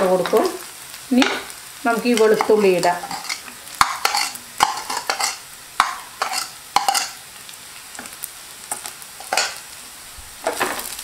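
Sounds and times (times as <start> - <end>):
shallots and garlic sizzling: 0.0 - 11.0
wooden spatula scraping pot: 2.1 - 7.2.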